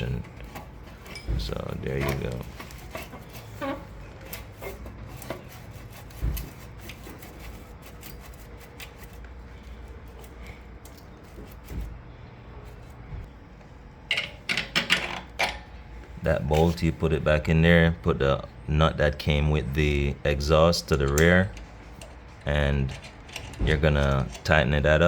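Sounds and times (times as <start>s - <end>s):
light rubbing: 0.0s - 13.1s.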